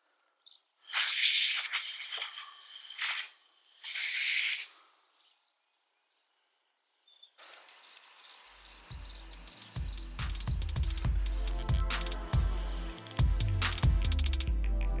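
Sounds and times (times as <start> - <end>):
compressed air blow gun hissing: 0.8 - 4.8.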